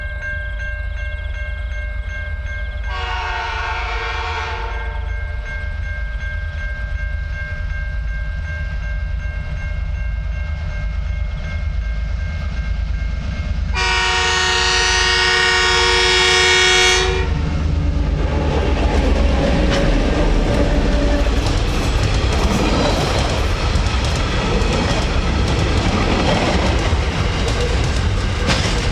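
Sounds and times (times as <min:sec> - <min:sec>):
diesel locomotives rumbling: 0:00.0 - 0:28.9
locomotive horn blast: 0:02.9 - 0:05.1, 0:13.8 - 0:17.6
wheels clattering over rail joints: 0:17.4 - 0:28.9.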